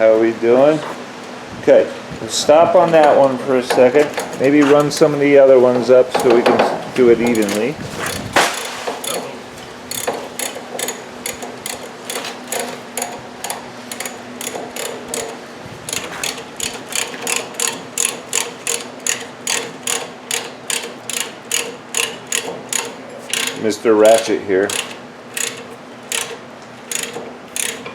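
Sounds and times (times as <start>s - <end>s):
ratchet wrench clicking: 7.3s - 9.3s, 9.9s - 27.9s.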